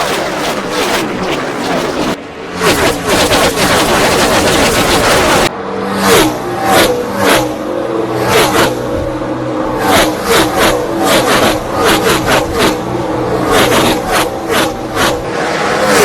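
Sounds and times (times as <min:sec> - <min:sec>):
race car engines passing: 0:01.6 - 0:16.0.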